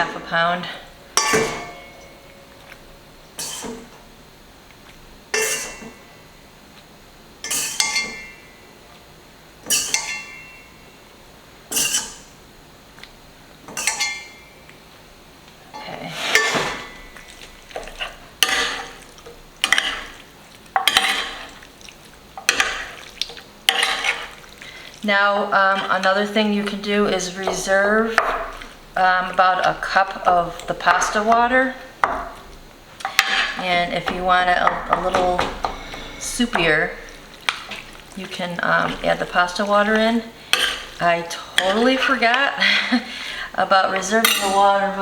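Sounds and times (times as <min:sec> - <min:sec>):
utensil scraping cookware: 0:01.2 - 0:02.4, 0:03.4 - 0:04.0, 0:05.4 - 0:06.0, 0:11.7 - 0:12.3, 0:15.8 - 0:17.2, 0:33.0 - 0:37.9, 0:38.6 - 0:42.4.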